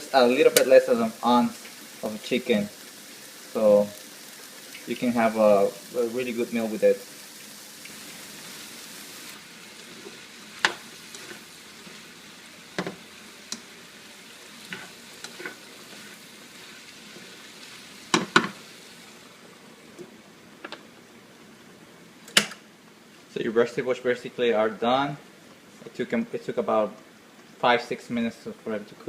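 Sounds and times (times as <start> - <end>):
food sizzling in a pan: 0.0 - 21.6.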